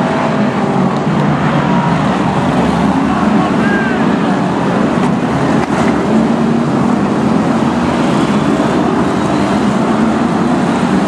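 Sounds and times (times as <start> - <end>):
race car engines roaring: 0.0 - 11.0.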